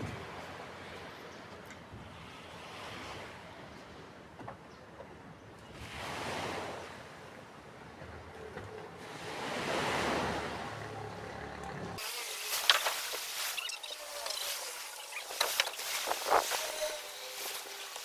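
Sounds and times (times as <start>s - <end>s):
sea waves washing in: 8.7s - 18.0s.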